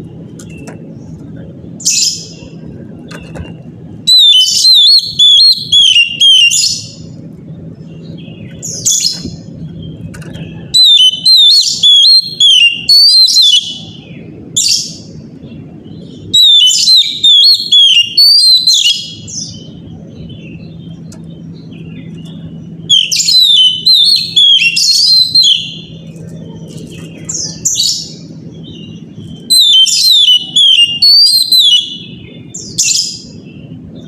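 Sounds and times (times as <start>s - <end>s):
low steady hum: 0.0s - 34.0s
bird singing whistled phrases: 4.1s - 7.0s, 8.5s - 15.0s, 16.1s - 19.7s, 21.6s - 26.0s, 27.3s - 33.7s.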